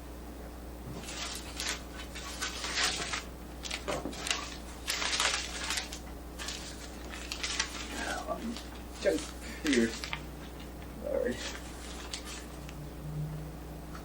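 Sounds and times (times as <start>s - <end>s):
clutter rustling and clattering: 0.8s - 12.7s.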